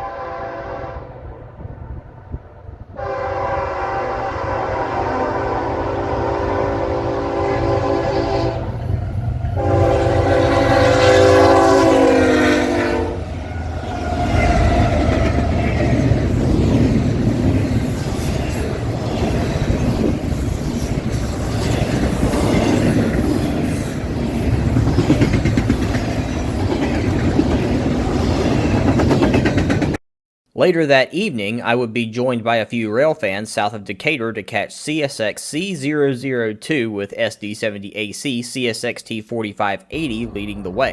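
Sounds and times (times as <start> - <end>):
locomotive air horn blasts: 0.0 - 1.3, 3.0 - 8.8, 9.6 - 13.6
train rumbling by: 0.0 - 30.0, 40.0 - 40.9
wheels clacking over rail joints: 21.8 - 28.0.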